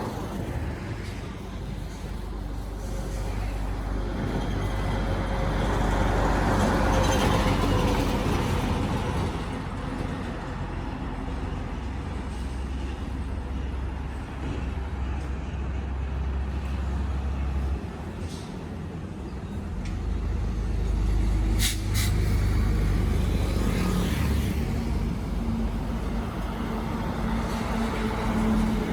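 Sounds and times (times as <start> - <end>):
highway traffic rumble: 0.0 - 28.9
brief sharp hiss or click: 21.6 - 22.3.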